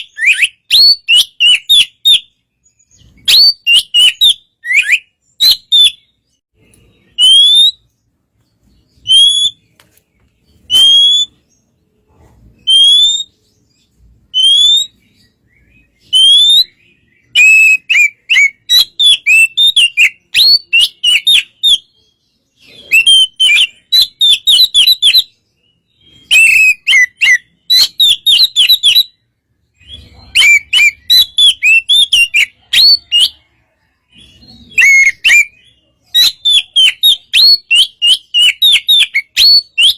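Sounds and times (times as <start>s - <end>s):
songbird singing whistled notes: 0.0s - 39.9s.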